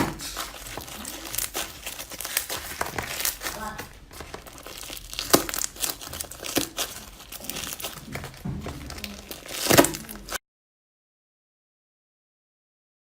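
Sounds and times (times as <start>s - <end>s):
slime crackling and popping: 0.0s - 10.4s.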